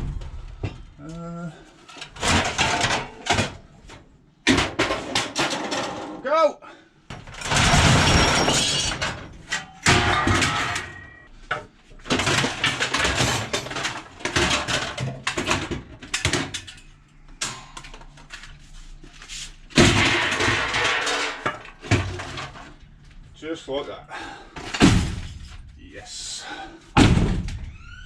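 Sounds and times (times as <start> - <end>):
scrap metal clattering: 1.8 - 3.9, 4.5 - 6.2, 18.2 - 22.8.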